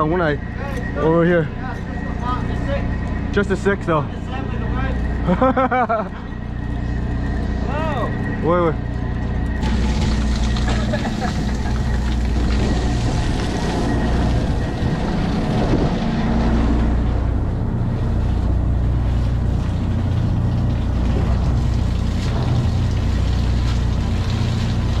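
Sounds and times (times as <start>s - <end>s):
boat engine running: 0.0s - 25.0s
water noise: 0.0s - 25.0s
wind: 0.0s - 25.0s.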